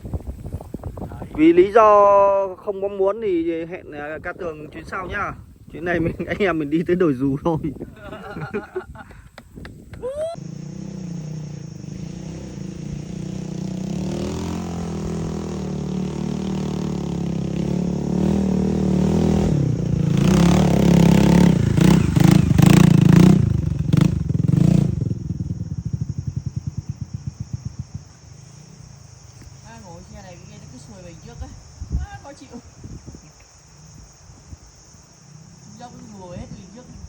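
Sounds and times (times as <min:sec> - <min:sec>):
motorcycle engine revving: 0:10.4 - 0:31.5, 0:34.8 - 0:37.0.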